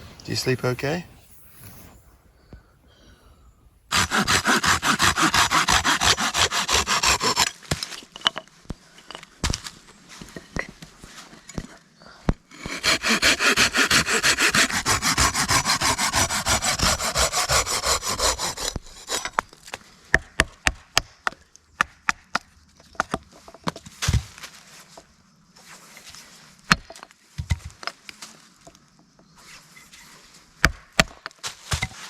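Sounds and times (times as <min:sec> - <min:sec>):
hand saw cutting wood: 0:03.9 - 0:07.6, 0:12.5 - 0:19.5.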